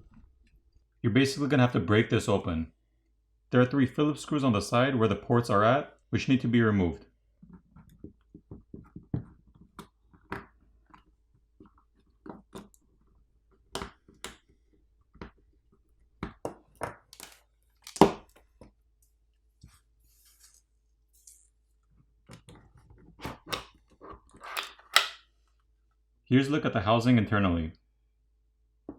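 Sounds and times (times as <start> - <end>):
tools clicking and scraping plastic: 7.4 - 18.7, 22.3 - 25.3
plastic cracking and snapping: 16.2 - 18.6, 23.2 - 25.2.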